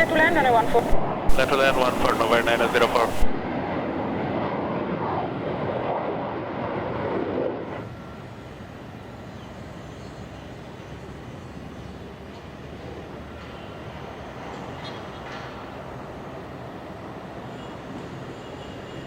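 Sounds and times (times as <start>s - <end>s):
jet engines roaring: 0.0s - 12.2s.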